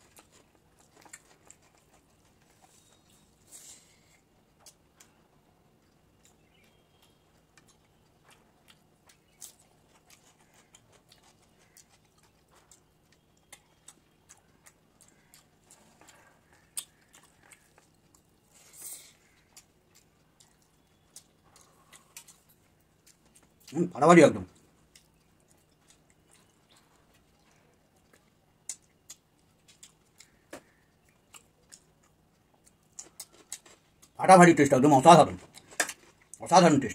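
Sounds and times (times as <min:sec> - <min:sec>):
man chewing food: 0:00.0 - 0:34.2, 0:35.0 - 0:36.5.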